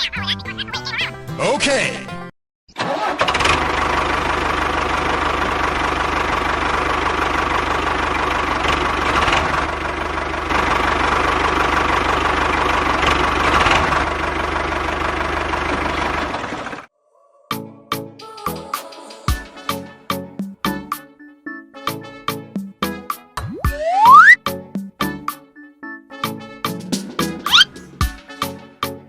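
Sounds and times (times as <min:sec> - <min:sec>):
small engine running: 0:02.9 - 0:16.9.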